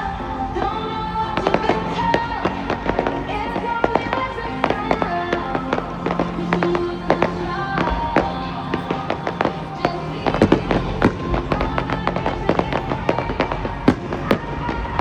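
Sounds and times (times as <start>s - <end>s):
music playing: 0.0s - 15.0s
fireworks bangs and crackles: 1.4s - 15.0s.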